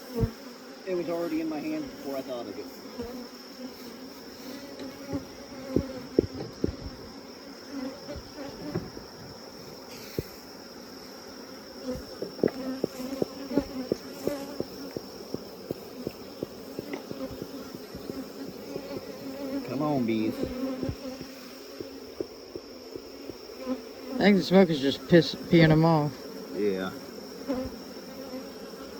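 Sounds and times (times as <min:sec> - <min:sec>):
honeybees buzzing: 0:00.0 - 0:28.9
sharp taps: 0:12.0 - 0:19.1.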